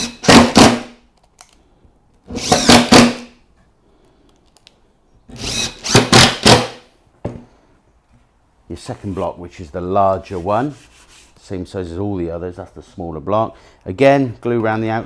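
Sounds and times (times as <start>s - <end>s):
power drill driving screws: 0.0s - 0.8s, 2.3s - 3.3s, 5.3s - 6.8s.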